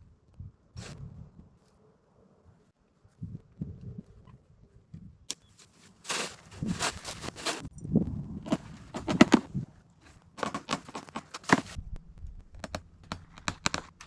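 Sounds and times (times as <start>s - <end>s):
rustling scrapes: 5.5s - 7.7s, 8.5s - 11.8s
sharp clicks and knocks: 10.2s - 14.0s.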